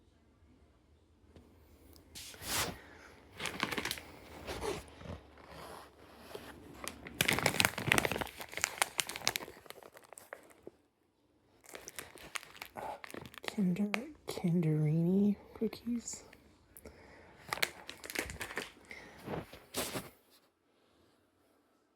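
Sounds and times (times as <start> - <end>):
plastic snack bag crinkling: 2.2 - 10.8, 11.6 - 15.2, 15.8 - 20.2.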